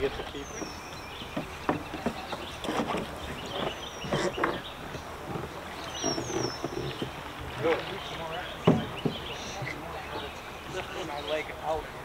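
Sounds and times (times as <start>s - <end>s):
canoe knocking and rubbing: 0.0s - 11.8s.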